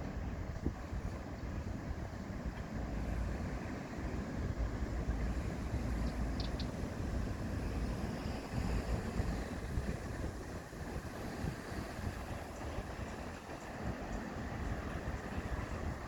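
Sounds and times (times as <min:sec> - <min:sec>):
wind buffeting microphone: 0:00.0 - 0:16.0
faint high ticks: 0:06.0 - 0:06.8.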